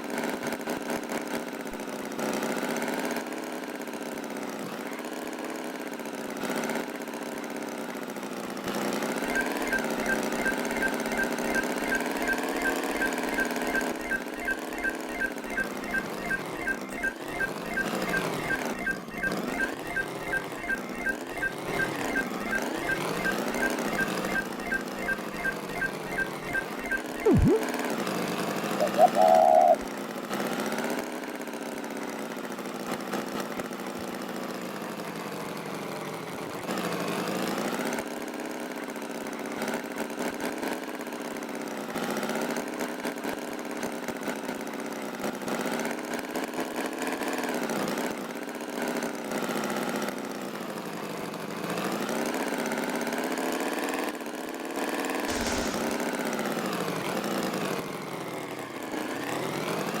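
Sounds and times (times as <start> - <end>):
cartoon tractor engine: 0.1 - 38.0, 55.2 - 56.6.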